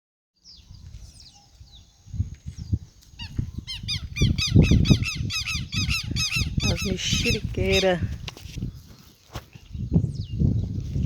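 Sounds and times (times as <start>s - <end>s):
birds chirping: 0.4s - 8.0s.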